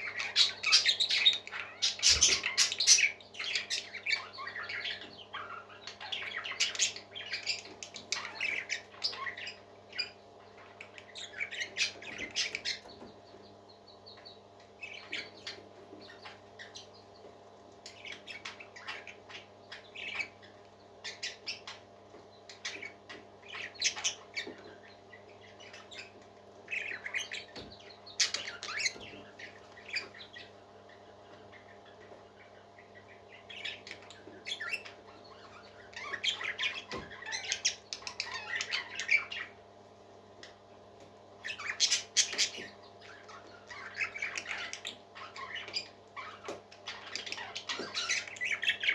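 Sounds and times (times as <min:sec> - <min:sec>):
parakeet squawks: 0:00.0 - 0:12.9, 0:17.8 - 0:21.8, 0:22.6 - 0:24.8, 0:28.2 - 0:39.6, 0:41.4 - 0:48.9
parakeets chirping and chattering: 0:00.0 - 0:48.9.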